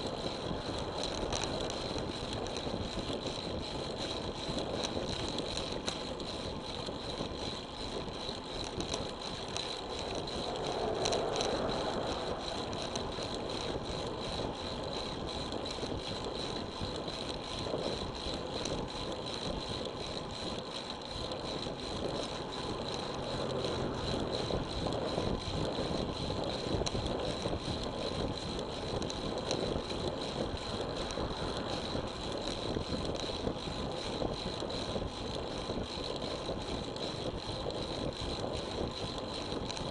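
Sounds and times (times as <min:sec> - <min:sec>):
bicycle tyre noise: 0:00.0 - 0:39.9
faint clicks and rattles: 0:00.0 - 0:39.9
wind noise: 0:21.5 - 0:39.9.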